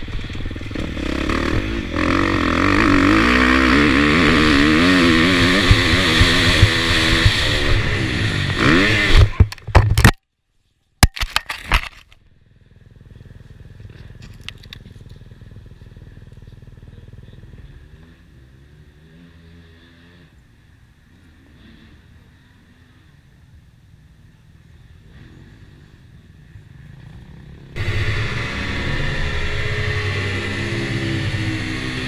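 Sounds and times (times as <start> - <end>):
motocross bike engine revving: 0.0 - 9.4, 27.8 - 32.0.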